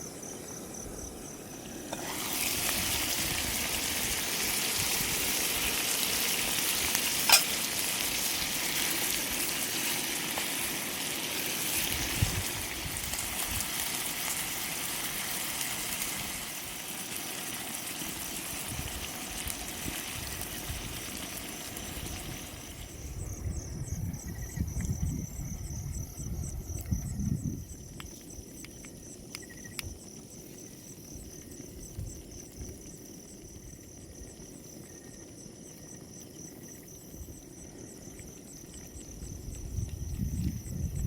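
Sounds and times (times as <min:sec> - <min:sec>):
insects trilling: 0:00.0 - 0:41.0
low wind rumbles on microphone: 0:11.8 - 0:13.8, 0:18.6 - 0:28.5, 0:37.0 - 0:41.0.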